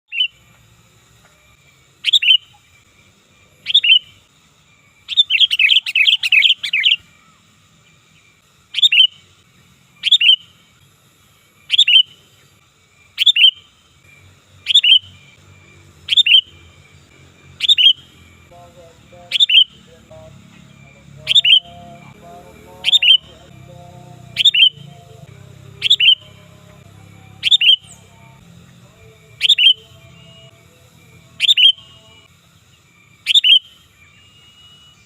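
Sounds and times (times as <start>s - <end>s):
bird calling loudly: 0.1s - 0.4s, 2.0s - 2.6s, 3.6s - 4.2s, 5.0s - 7.1s, 8.7s - 9.2s, 10.0s - 10.6s, 11.7s - 12.2s, 13.2s - 13.7s, 14.6s - 15.4s, 16.0s - 16.7s, 17.5s - 24.9s, 25.7s - 26.4s, 27.3s - 28.1s, 29.4s - 30.0s, 31.4s - 31.9s, 33.2s - 35.0s.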